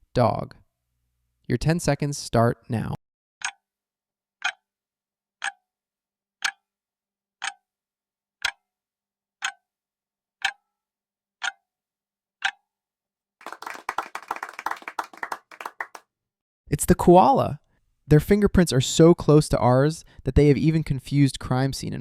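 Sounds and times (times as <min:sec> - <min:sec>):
clock ticking: 0:03.4 - 0:03.6, 0:04.4 - 0:04.7, 0:05.4 - 0:05.6, 0:06.4 - 0:06.7, 0:07.4 - 0:07.7, 0:08.4 - 0:08.6, 0:09.4 - 0:09.7, 0:10.4 - 0:10.6, 0:11.4 - 0:11.6, 0:12.4 - 0:12.6
people clapping: 0:13.4 - 0:16.0.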